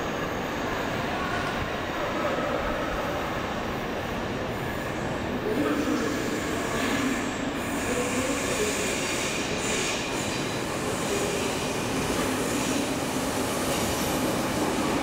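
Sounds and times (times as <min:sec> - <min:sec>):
train whine: 0:00.0 - 0:15.0.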